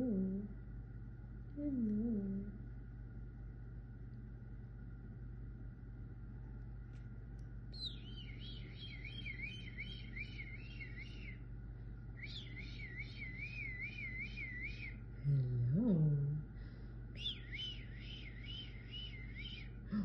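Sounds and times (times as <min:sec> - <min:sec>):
steady low hum: 0:00.0 - 0:20.0
cockatiel whistling: 0:07.8 - 0:11.4, 0:12.2 - 0:15.0, 0:17.2 - 0:19.8.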